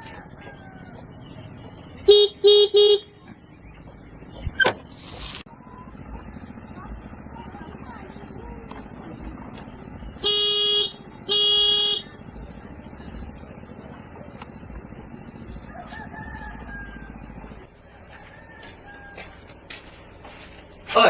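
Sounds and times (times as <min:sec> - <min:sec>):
vehicle horn blasts: 0:02.0 - 0:03.2, 0:10.2 - 0:12.3.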